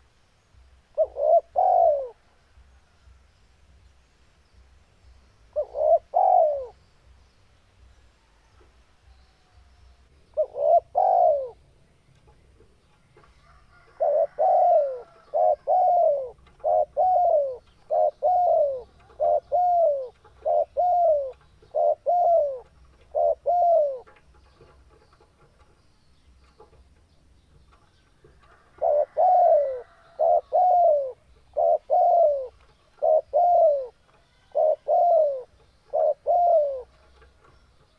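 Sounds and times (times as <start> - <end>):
dove cooing: 0.9 - 2.2, 5.5 - 6.8, 10.3 - 11.7, 13.4 - 25.0, 28.3 - 37.9.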